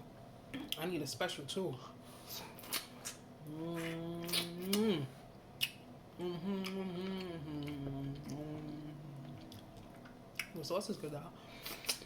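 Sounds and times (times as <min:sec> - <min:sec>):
woman humming: 0:03.4 - 0:05.2, 0:06.1 - 0:09.6.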